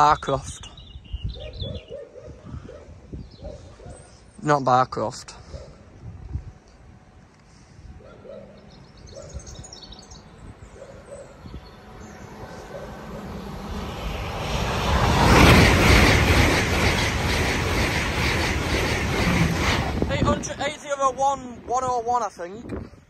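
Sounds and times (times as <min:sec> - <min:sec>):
high-speed train passing: 0:06.6 - 0:22.5.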